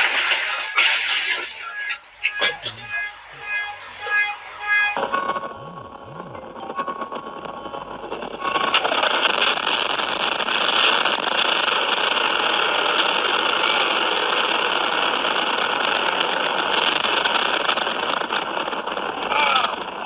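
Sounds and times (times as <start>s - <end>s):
car engine: 2.1s - 10.0s.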